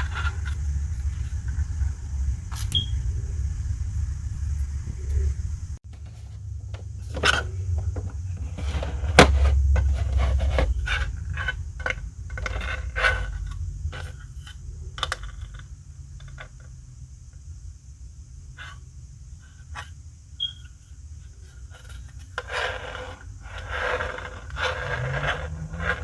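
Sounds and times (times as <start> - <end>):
packaging rustling and scraping: 0.0 - 2.0, 6.0 - 15.6, 21.4 - 26.0
low rumble: 0.0 - 5.8.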